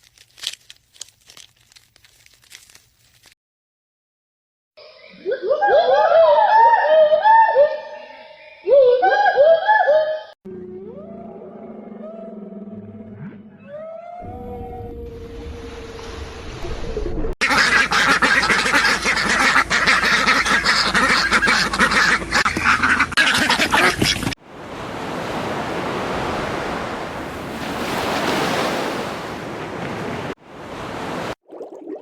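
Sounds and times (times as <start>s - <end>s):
ducks quacking: 17.4s - 24.4s.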